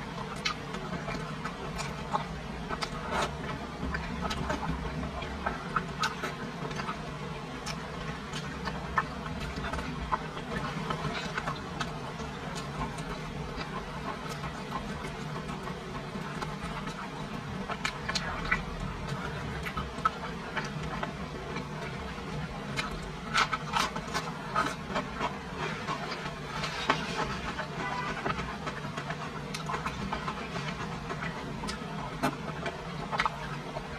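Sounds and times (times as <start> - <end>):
steady low hum: 0.0 - 33.9
chewing and wet mouth clicks: 0.3 - 7.0, 17.7 - 22.0, 28.3 - 33.9.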